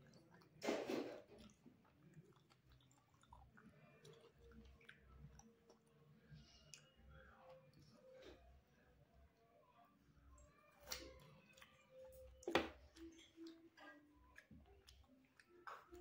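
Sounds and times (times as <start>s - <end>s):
person chewing food: 0.0s - 8.6s, 10.4s - 16.0s.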